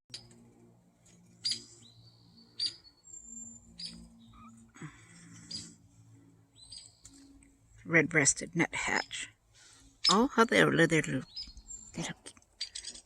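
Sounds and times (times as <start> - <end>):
small birds calling: 1.4 - 7.5, 8.9 - 13.0.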